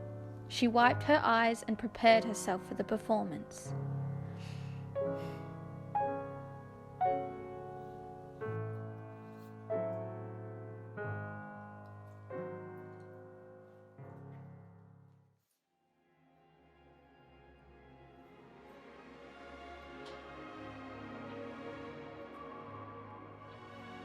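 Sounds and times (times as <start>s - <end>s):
slow solo piano: 3.7s - 15.1s.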